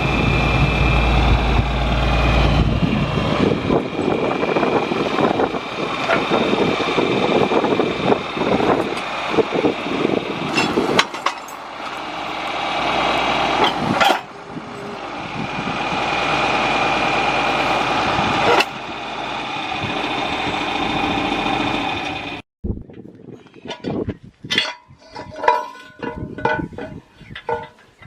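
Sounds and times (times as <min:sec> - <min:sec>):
tractor engine running: 0:00.0 - 0:28.0
sharp metallic knocks: 0:23.8 - 0:27.8.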